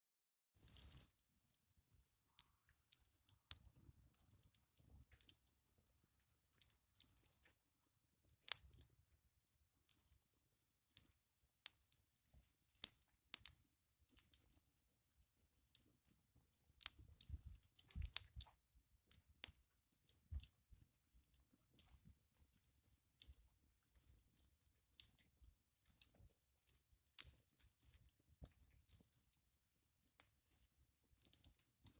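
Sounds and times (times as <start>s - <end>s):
campfire crackling and popping: 16.8s - 18.5s.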